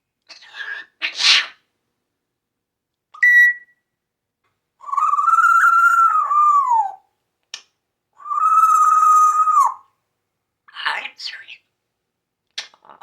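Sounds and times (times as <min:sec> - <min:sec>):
parrot whistled calls: 0:03.2 - 0:03.7, 0:04.8 - 0:07.0, 0:08.3 - 0:09.8.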